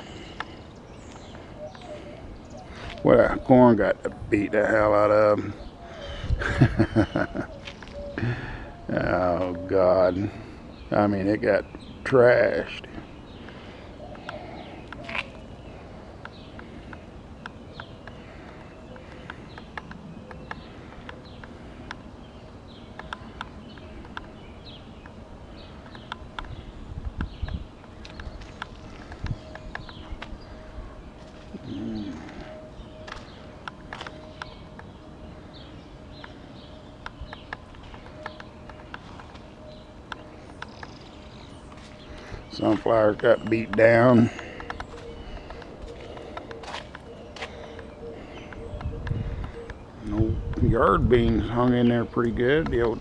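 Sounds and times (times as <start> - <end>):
birds chirping: 0.0 - 53.0
steady low rumble: 0.0 - 53.0
sharp clicks and ticks: 23.0 - 24.3
sharp clicks: 42.0 - 50.6.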